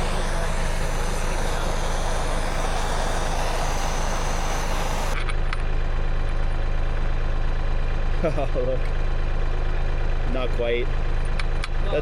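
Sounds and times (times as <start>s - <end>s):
gas torch hissing: 0.0s - 5.2s.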